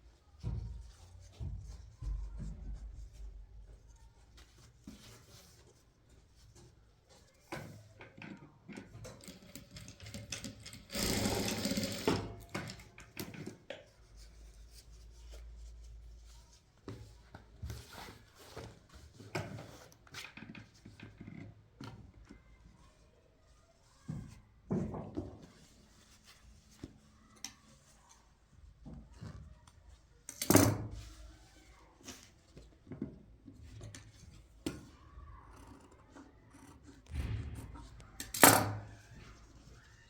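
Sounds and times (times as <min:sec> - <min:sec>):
sewing machine stitching: 0:09.4 - 0:12.8.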